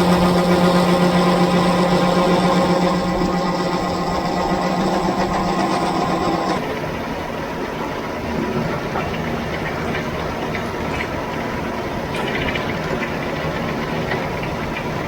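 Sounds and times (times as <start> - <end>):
combine harvester drone: 0.0 - 6.8.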